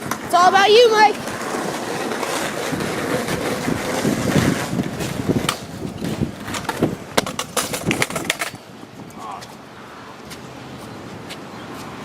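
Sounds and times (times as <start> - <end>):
small wheels rolling on pavement: 0.0 - 12.0
wind on microphone: 2.5 - 9.3.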